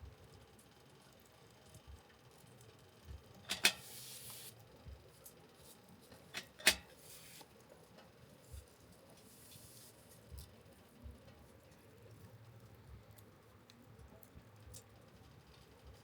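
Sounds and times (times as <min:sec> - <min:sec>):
short hiss: 0:03.5 - 0:04.6.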